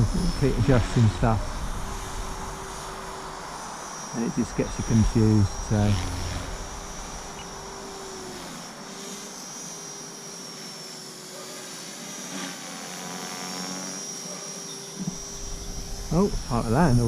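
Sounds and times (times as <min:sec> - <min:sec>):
rc helicopter rotor whine: 0:00.0 - 0:17.0.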